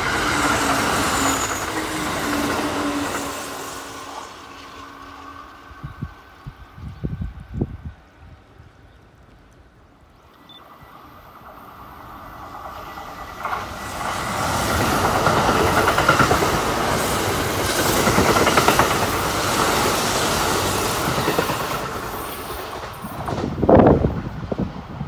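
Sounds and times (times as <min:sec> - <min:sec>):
electric train passing at speed: 0:00.0 - 0:25.0
wheels clacking over rail joints: 0:12.4 - 0:24.2.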